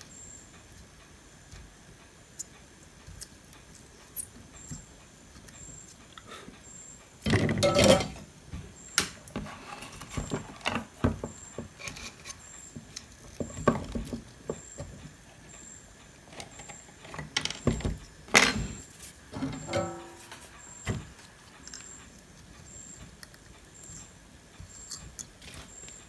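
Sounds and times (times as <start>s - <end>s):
clatter on workbench: 7.3s - 8.2s, 16.4s - 21.0s
tools clicking and scraping: 7.6s - 8.2s, 16.3s - 22.5s.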